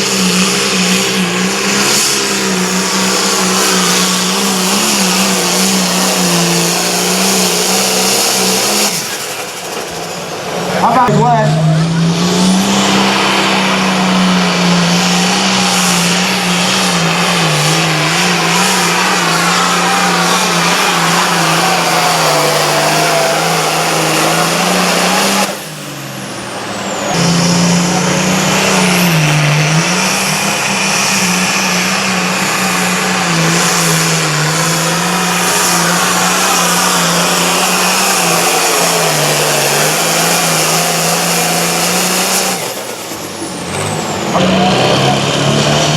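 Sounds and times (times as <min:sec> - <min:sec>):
tractor engine at high revs: 0:00.0 - 0:45.9.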